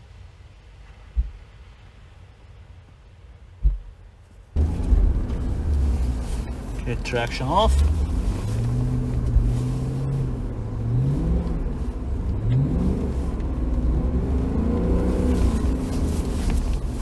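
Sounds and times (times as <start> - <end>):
car engine revving: 4.6 - 17.0.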